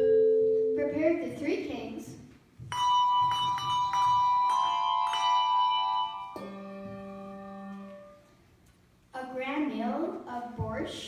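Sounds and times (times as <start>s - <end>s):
tuned bells ringing: 2.7s - 7.2s
low bell note: 2.7s - 8.1s.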